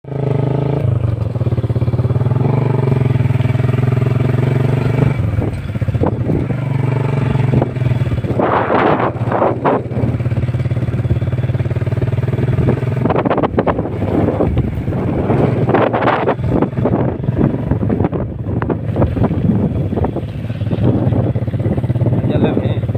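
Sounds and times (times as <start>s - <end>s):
engine running steadily: 0.0s - 22.9s
gusts of rushing noise: 6.0s - 10.3s, 12.5s - 22.3s.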